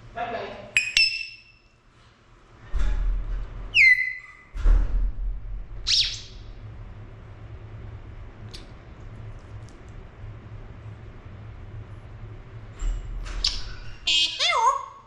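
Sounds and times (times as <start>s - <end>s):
low rumbling noise: 2.4s - 3.8s, 4.4s - 14.1s
parrot whistling: 3.7s - 4.5s, 5.9s - 6.4s.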